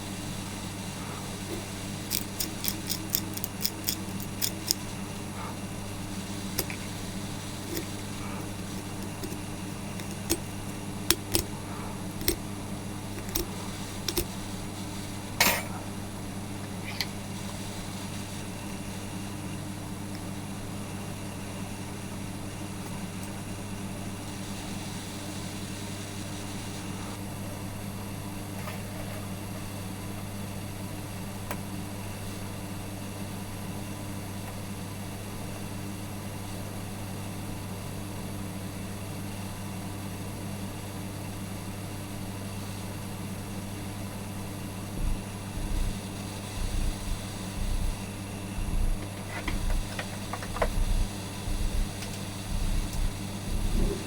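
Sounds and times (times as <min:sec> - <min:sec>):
low electrical hum: 0:00.0 - 0:54.0
kettle switch parts clicking: 0:01.5 - 0:04.9, 0:06.5 - 0:07.0, 0:07.6 - 0:14.4.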